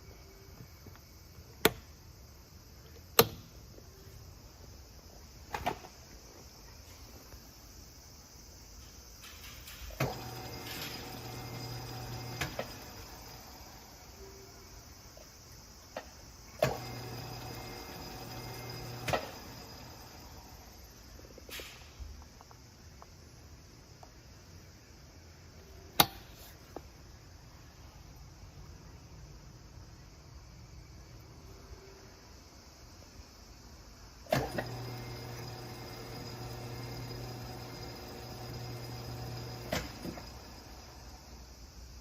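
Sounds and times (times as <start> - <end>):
lathe motor humming and whining: 10.0 - 13.4, 16.7 - 20.3, 34.4 - 40.9.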